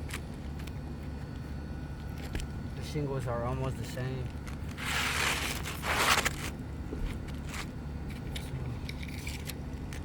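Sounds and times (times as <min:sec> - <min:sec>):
roof shingles scraping rustle: 0:04.8 - 0:06.5.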